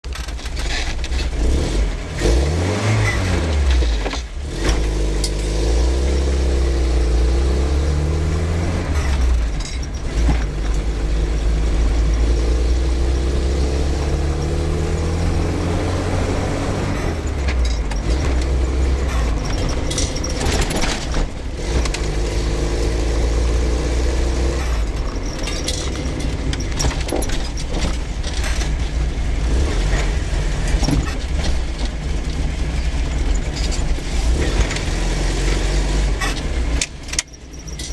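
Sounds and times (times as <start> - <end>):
car engine running: 0.0 - 37.9
car body knocks and rattles: 17.0 - 22.6, 24.7 - 37.9.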